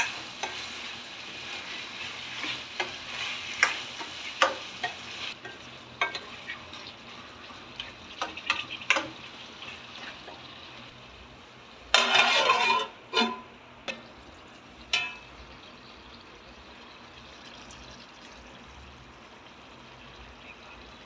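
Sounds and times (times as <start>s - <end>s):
spoon scraping a pan: 0.0s - 10.5s, 11.9s - 14.0s, 14.9s - 15.2s
curry sizzling in a pan: 0.0s - 21.0s.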